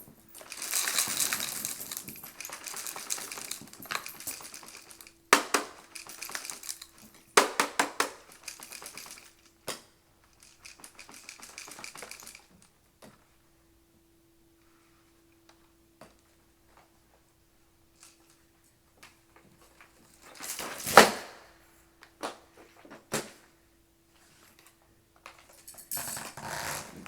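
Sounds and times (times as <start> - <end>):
coins and pebbles clattering: 0.0 - 9.4.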